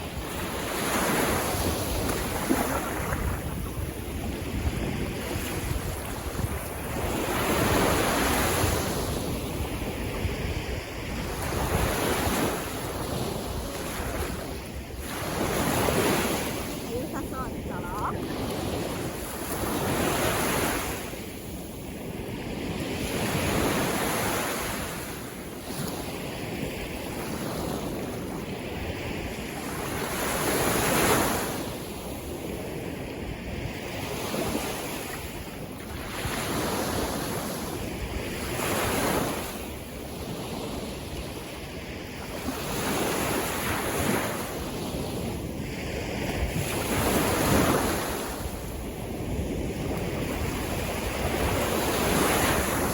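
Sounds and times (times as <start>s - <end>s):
wind buffeting microphone: 0.0s - 25.2s
sea waves breaking: 0.0s - 32.6s, 41.8s - 52.9s.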